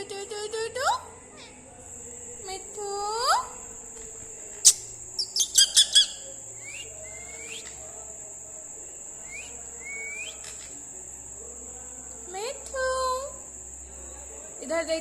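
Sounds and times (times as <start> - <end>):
parrot chirps: 4.6 - 7.8
upward-sliding whistled calls: 4.6 - 7.8, 9.2 - 10.7.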